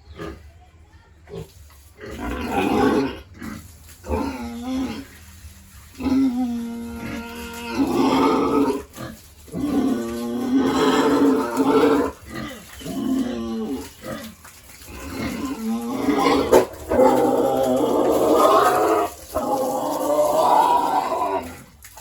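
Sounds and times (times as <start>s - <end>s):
pigs squealing: 6.0s - 21.7s.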